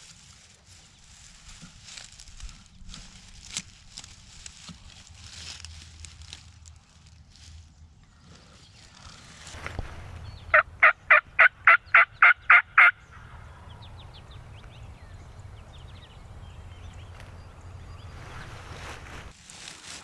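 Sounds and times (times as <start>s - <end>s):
turkey yelps: 10.5s - 13.6s.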